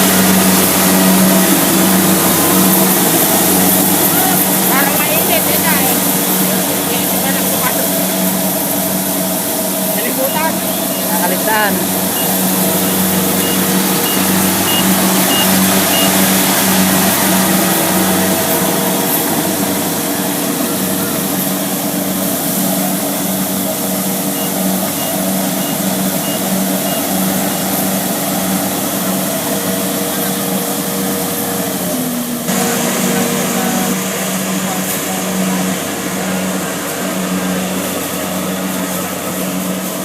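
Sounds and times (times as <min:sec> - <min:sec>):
high warning beeper: 0:00.0 - 0:22.8, 0:24.0 - 0:27.5
diesel engine running: 0:00.0 - 0:40.0
mechanical whir of machinery: 0:00.0 - 0:40.0.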